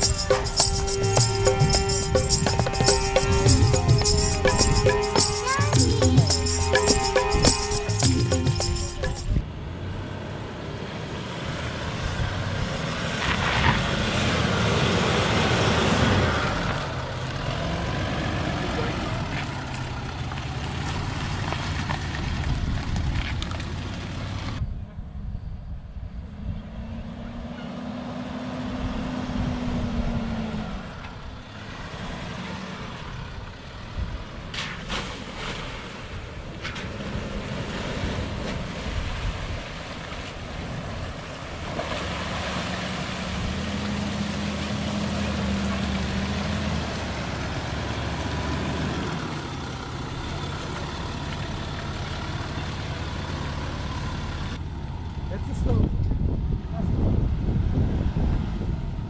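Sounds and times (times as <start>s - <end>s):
engine revving: 0.0s - 21.9s, 41.6s - 54.6s.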